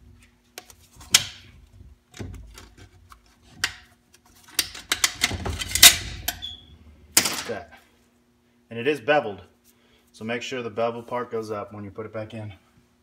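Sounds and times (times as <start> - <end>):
metal parts knocking and clattering: 4.5 - 6.4
metal parts clicking: 4.6 - 6.5.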